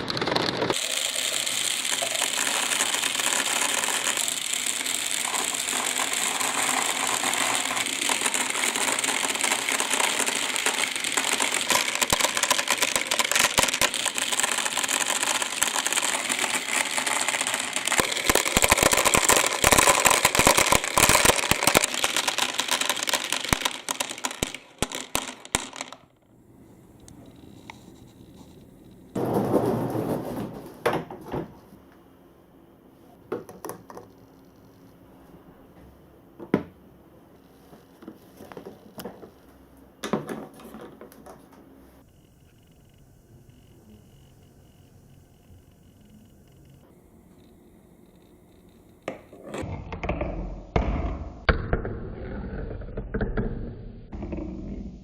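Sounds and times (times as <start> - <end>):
balls clattering down a marble run: 0.0 - 26.0.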